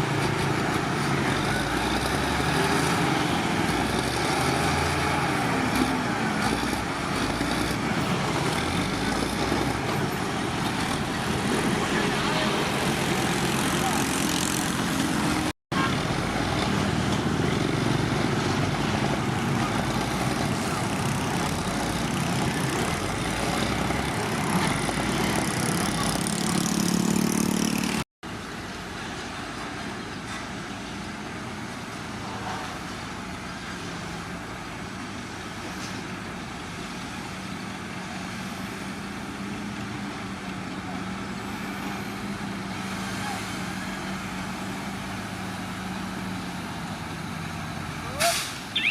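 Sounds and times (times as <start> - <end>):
diesel engine drone: 0.0 - 30.4
diesel machinery engine: 0.0 - 48.9.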